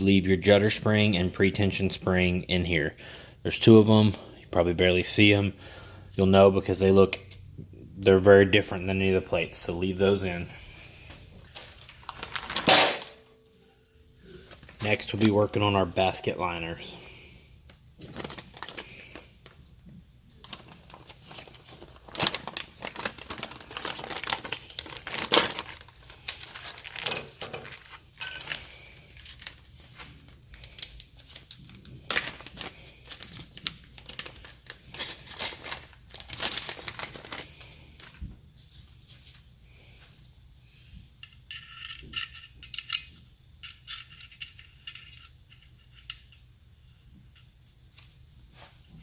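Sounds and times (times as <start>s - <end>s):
plastic packaging crinkling: 11.5s - 12.7s, 18.0s - 19.6s, 20.4s - 38.2s
packaging tearing: 20.5s - 27.0s.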